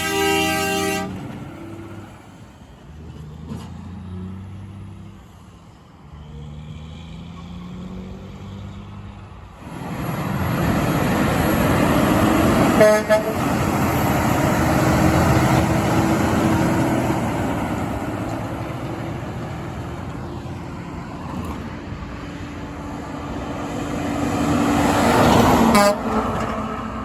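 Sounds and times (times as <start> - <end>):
truck air horn: 0.0 - 1.9, 12.5 - 16.3, 25.4 - 26.4
truck engine: 0.0 - 27.0
truck passing rushing noise: 0.0 - 27.0.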